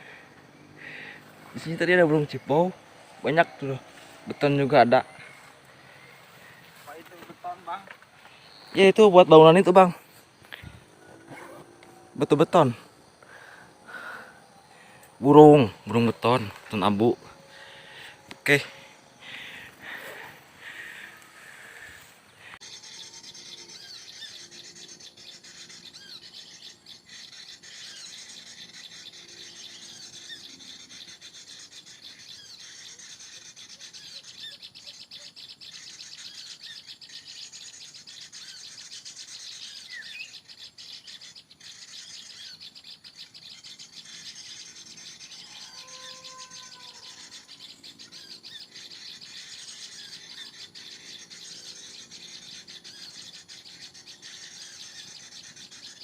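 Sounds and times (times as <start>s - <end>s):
small birds chirping chorus: 0.0s - 56.0s.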